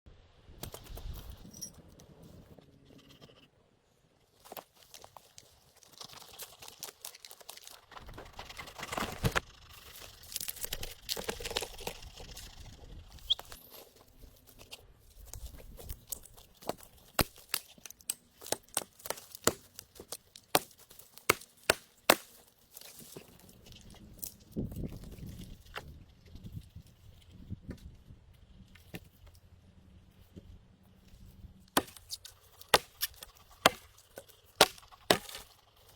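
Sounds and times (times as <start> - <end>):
dry leaves and sticks rustling: 4.2 - 35.9
sticks snapping: 15.3 - 23.0.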